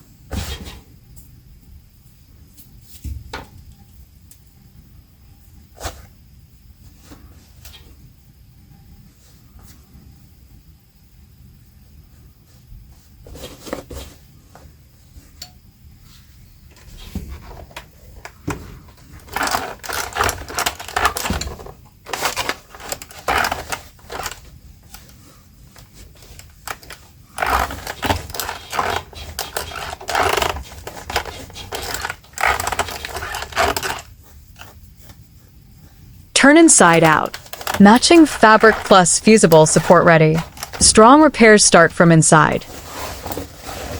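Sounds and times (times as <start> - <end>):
rapid clicking and rustling: 19.0 - 34.7, 37.2 - 37.8.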